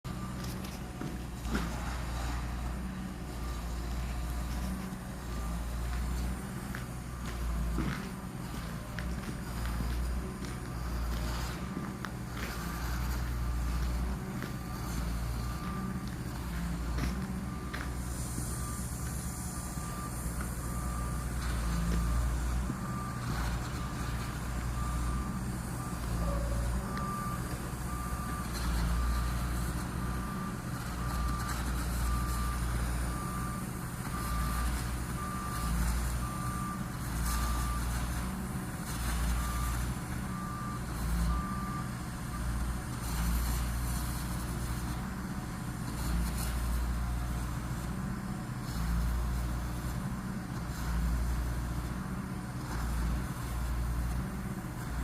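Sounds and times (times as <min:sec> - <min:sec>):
diesel engine rumble: 0:00.0 - 0:55.0
backup alarm beeping: 0:00.1 - 0:37.9.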